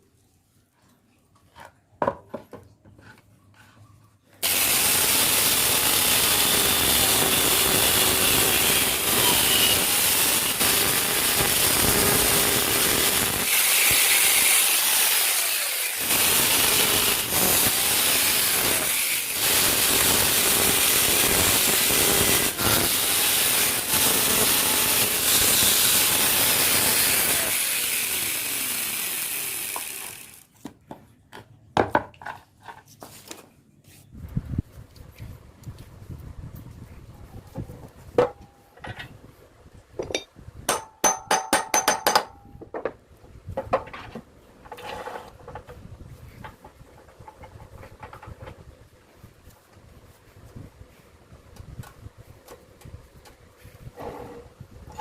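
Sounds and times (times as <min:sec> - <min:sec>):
lathe tool scraping wood: 0:04.4 - 0:30.4.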